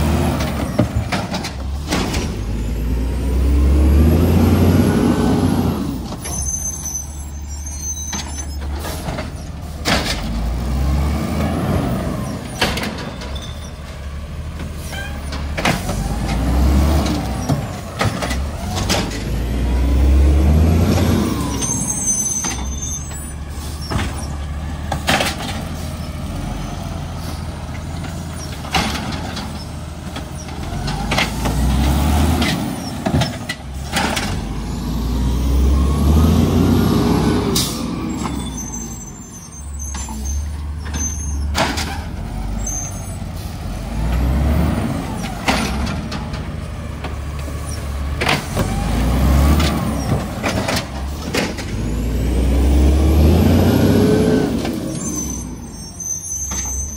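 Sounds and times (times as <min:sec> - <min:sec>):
garbage truck engine revving: 0:00.0 - 0:13.2, 0:14.0 - 0:56.9
high squeal: 0:06.2 - 0:09.5, 0:21.2 - 0:24.4, 0:38.0 - 0:41.5, 0:42.5 - 0:43.2, 0:54.8 - 0:56.9.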